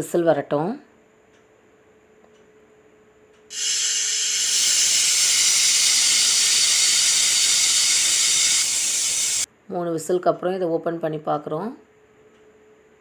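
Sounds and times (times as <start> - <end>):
pressure cooker whistle hissing steam: 3.5 - 9.5.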